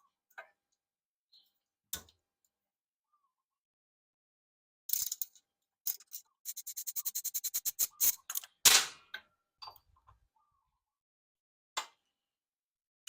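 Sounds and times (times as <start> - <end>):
ratchet wrench clicking: 4.9 - 5.3, 5.9 - 8.4.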